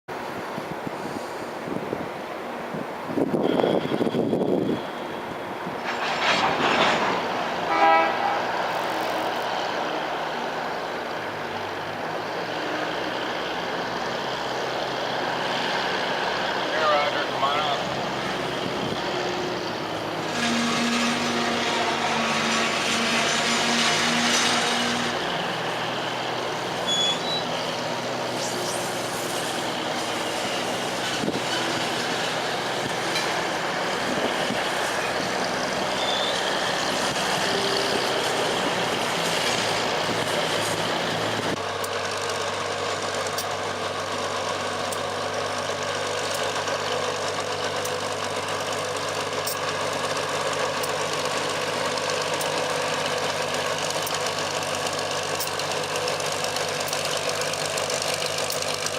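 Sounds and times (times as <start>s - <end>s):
locomotive diesel engine: 0.1s - 58.9s.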